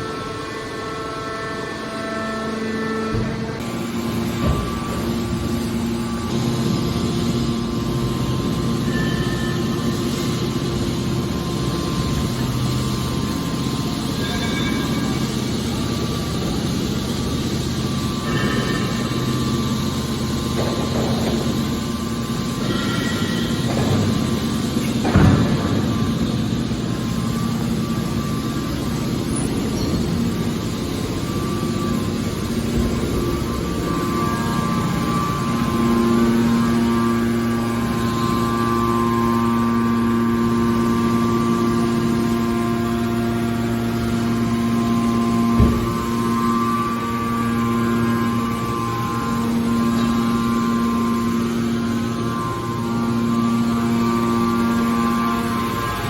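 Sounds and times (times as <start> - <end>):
baler machine hum: 0.0 - 56.0
constant rumble: 9.9 - 39.2.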